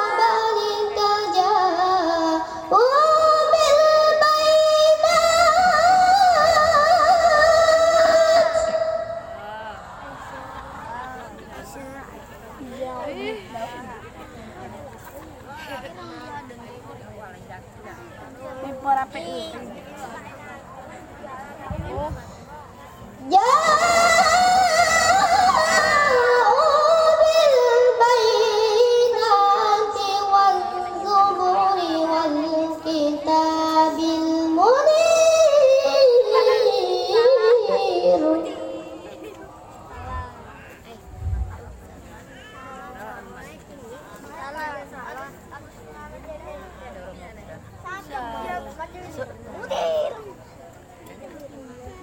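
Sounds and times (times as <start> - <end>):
melodic recitation by one voice: 0.0 - 10.0, 23.2 - 40.1.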